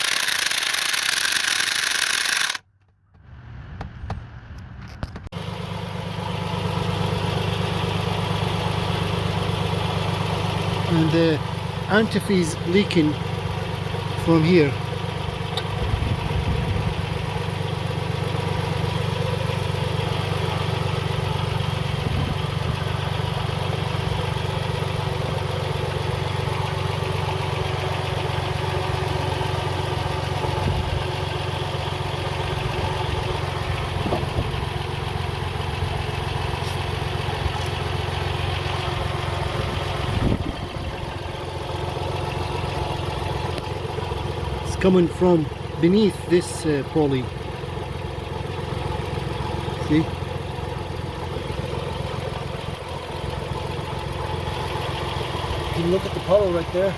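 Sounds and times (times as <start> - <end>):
car engine idling: 0.0 - 56.9
faint engine knocks: 2.8 - 5.5.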